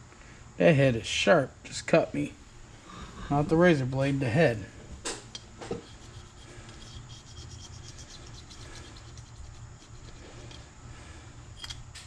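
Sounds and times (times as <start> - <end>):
razor blade scraping gasket: 5.8 - 10.2.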